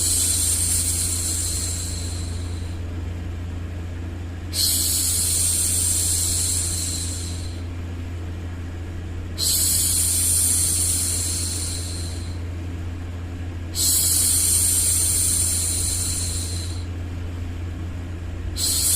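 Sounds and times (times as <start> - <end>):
low hum of white noise: 0.0 - 18.9.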